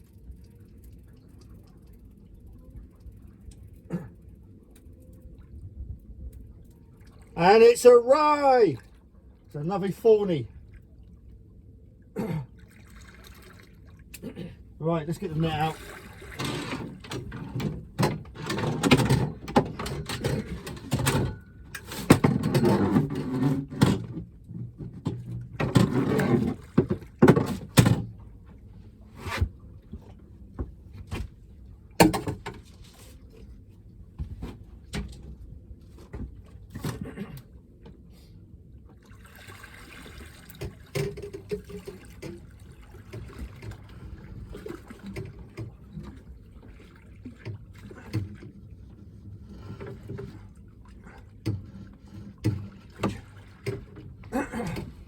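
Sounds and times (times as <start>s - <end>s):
fishing gear knocking against boat: 16.6s - 28.2s, 32.0s - 32.8s.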